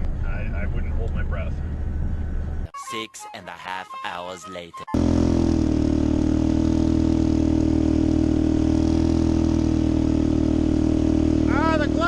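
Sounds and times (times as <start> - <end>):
engine running steadily: 4.9 - 12.0.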